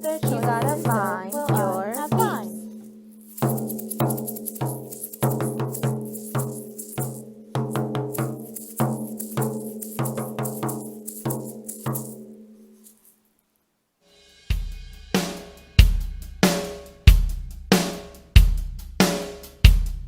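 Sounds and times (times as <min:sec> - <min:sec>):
struck pitched percussion pattern: 0:00.0 - 0:02.6.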